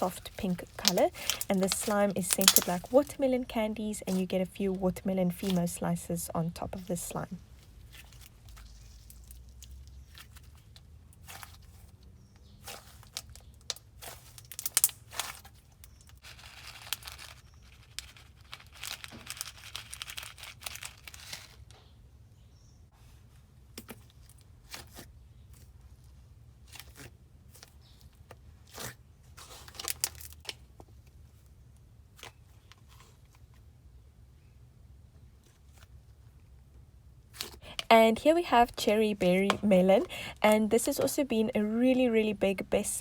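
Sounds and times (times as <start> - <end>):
slime being squished: 0.0 - 3.2.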